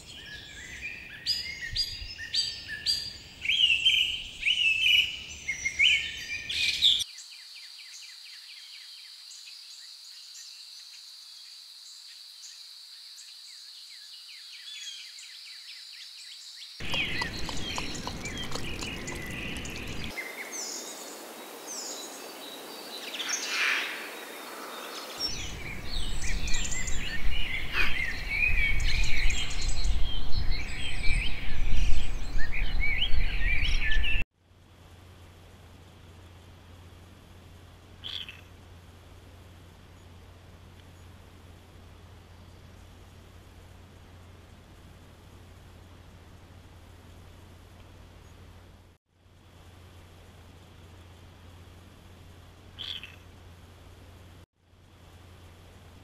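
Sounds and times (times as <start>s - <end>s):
birds chirping and calling: 16.8s - 20.4s, 24.8s - 34.2s, 38.0s - 38.5s, 52.8s - 53.2s.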